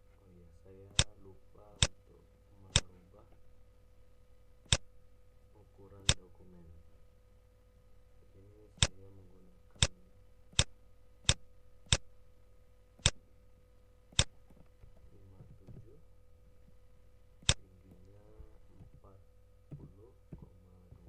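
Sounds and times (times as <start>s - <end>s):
computer mouse button clicking: 0.9s - 1.2s, 2.7s - 3.0s, 4.7s - 4.9s, 10.6s - 12.1s, 13.0s - 13.2s, 14.1s - 14.7s.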